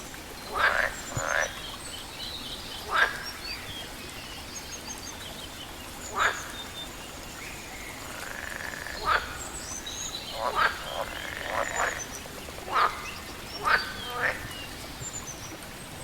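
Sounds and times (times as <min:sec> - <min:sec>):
small birds chirping faintly: 0:00.0 - 0:16.0
frogs croaking: 0:00.2 - 0:02.0, 0:02.6 - 0:03.9, 0:06.0 - 0:15.6.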